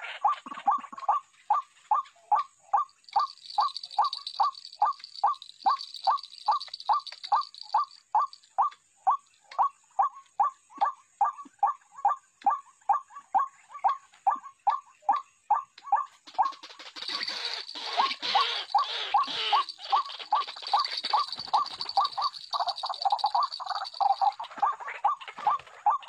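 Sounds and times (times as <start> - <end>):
waterhen wak-wak call: 16.0 - 26.0.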